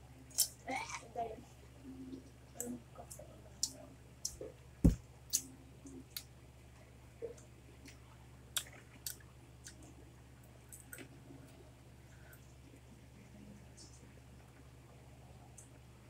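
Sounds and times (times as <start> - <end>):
lip smacks and chewing: 7.3 - 10.0.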